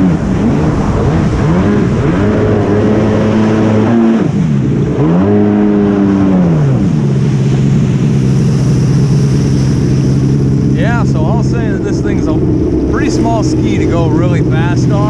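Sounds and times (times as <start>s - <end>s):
jet ski engine: 0.0s - 15.0s.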